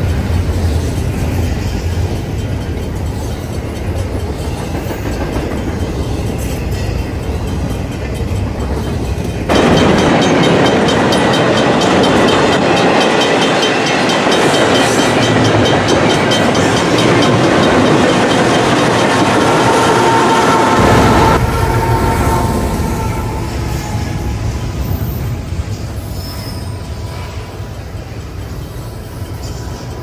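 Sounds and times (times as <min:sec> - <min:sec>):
wheels clacking over rails: 0:00.0 - 0:21.4
freight train rolling past: 0:00.0 - 0:30.0.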